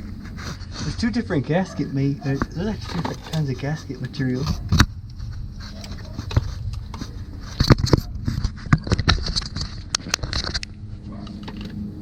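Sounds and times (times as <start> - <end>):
hand tools clicking and tapping: 2.2 - 8.1.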